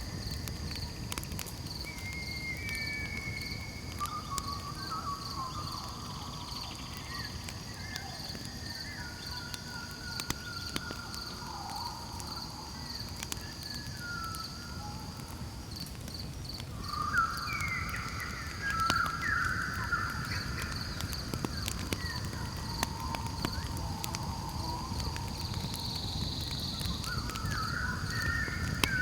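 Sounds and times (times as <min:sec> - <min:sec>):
campfire popping: 0:00.0 - 0:29.0
crickets trilling: 0:00.0 - 0:29.0
sliding whistling calls: 0:01.8 - 0:07.3, 0:16.8 - 0:29.0.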